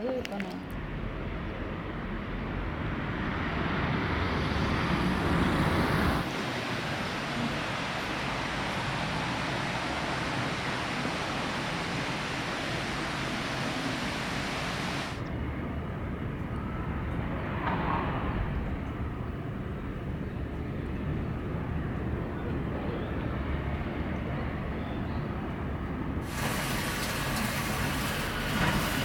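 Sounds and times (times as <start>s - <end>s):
hiss: 8.8s - 15.2s, 26.2s - 29.0s.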